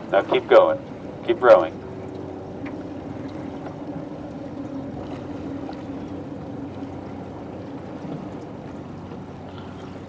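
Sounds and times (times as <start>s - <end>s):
water washing: 0.0s - 10.0s.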